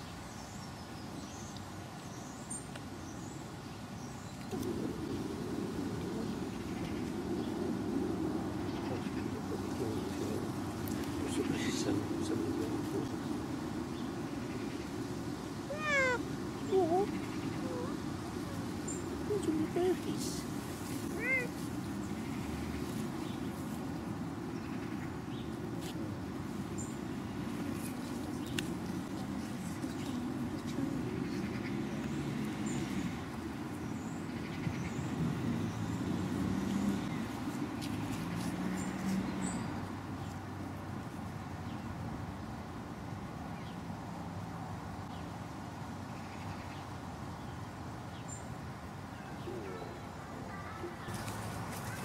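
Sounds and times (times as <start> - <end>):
steady low rumble: 4.5 - 15.0.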